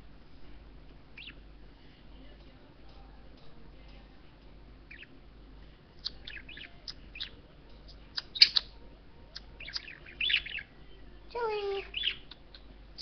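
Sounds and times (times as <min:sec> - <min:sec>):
budgerigar chirping and chattering: 0:01.2 - 0:01.4, 0:04.9 - 0:05.1, 0:06.0 - 0:10.7, 0:11.4 - 0:13.0.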